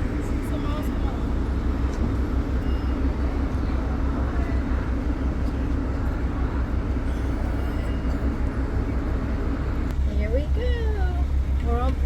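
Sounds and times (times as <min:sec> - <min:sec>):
ferry diesel engine drone: 0:00.0 - 0:12.0.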